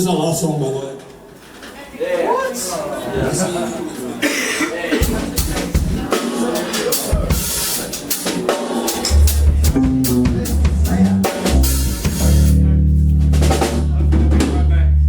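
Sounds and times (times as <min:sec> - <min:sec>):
drum kit playing: 0:05.0 - 0:15.0
heavy bass notes: 0:09.1 - 0:15.0.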